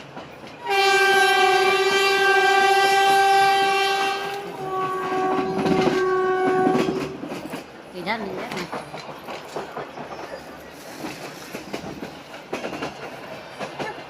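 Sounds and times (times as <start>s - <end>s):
rumble and clatter of moving train: 0.0s - 14.0s
locomotive horn blasts: 0.6s - 7.2s.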